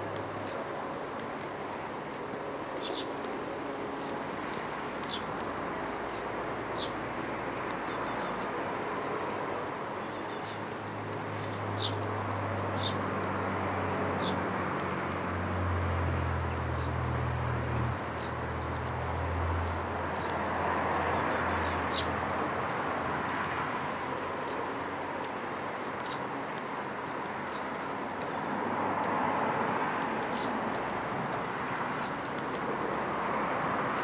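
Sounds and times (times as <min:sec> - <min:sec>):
birds chirping: 0:02.7 - 0:03.2, 0:05.0 - 0:07.0, 0:07.8 - 0:08.6, 0:10.0 - 0:10.7, 0:11.4 - 0:13.1, 0:20.1 - 0:22.2.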